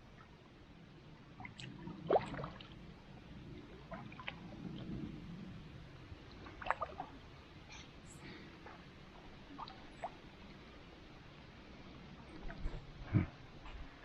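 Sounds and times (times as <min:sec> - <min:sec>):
water sloshing and dripping: 0:01.2 - 0:05.3, 0:05.9 - 0:11.4, 0:12.2 - 0:13.0.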